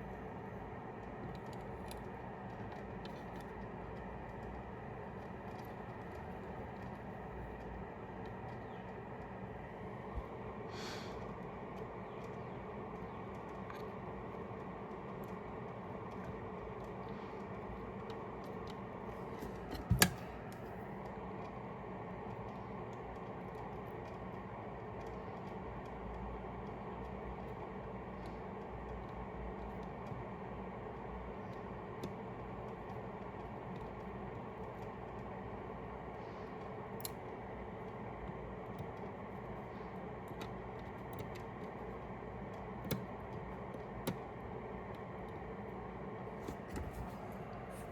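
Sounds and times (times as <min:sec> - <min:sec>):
workbench equipment whirring hum: 0:00.0 - 0:47.9.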